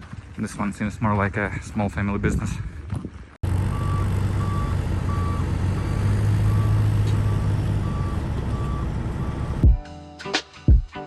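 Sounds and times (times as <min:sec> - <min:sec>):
diesel engine running: 0:03.4 - 0:09.7
backup alarm beeping: 0:03.7 - 0:09.7.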